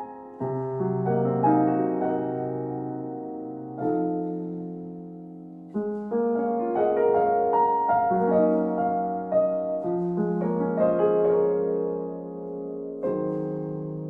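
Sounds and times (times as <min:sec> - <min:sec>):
soft slow piano music: 0:00.0 - 0:14.0.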